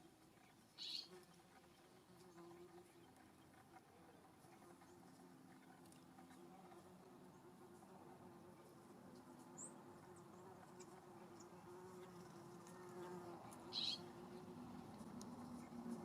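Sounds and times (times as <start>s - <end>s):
flying insect buzzing: 9.2s - 16.0s.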